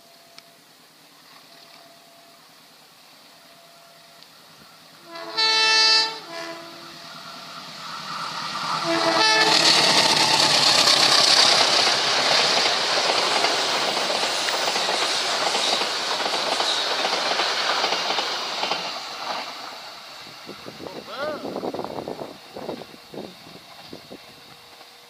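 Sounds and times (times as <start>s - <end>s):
passenger train passing: 0.0s - 25.0s
locomotive horn: 5.0s - 7.4s, 8.7s - 10.6s.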